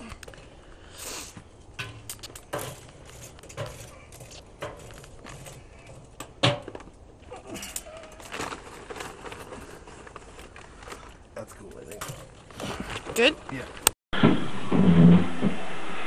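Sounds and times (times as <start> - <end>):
tongs and charcoal clinking on metal: 1.7 - 6.7, 7.5 - 8.3, 11.6 - 12.4.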